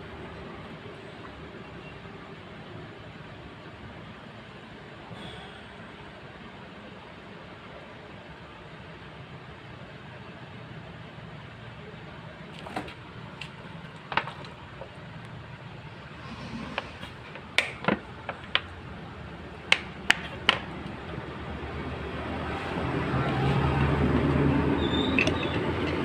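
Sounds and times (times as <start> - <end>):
street traffic hum: 0.0 - 26.0
vehicle engine: 9.1 - 26.0
sharp clicks and knocks: 19.7 - 21.0.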